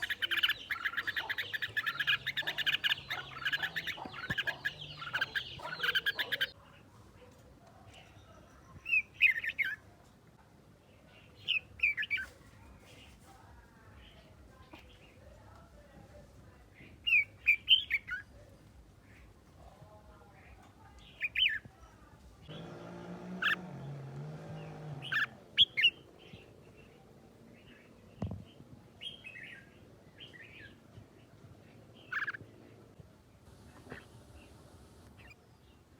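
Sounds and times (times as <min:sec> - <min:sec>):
bird sharp chirps: 0:00.0 - 0:06.6.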